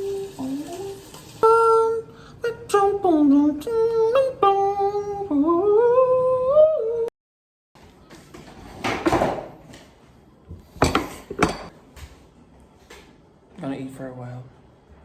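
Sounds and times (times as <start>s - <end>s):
high voice humming a melody: 0.0s - 7.1s.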